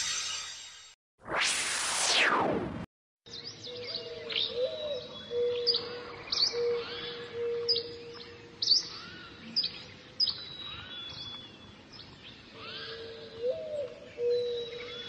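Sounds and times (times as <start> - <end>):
lower steady bird call: 3.3 - 15.0.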